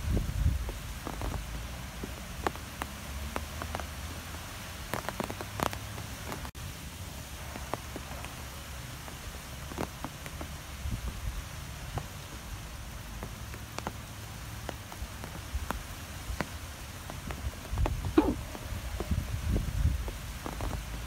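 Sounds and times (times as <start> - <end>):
steady rain falling: 0.0 - 21.0
drops ticking near microphone: 4.8 - 6.5.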